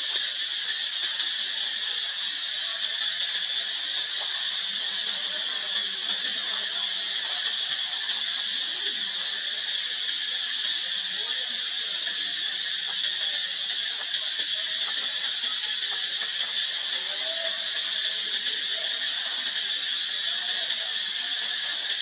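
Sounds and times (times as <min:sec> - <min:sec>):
high-pitched hiss: 0:00.0 - 0:22.0.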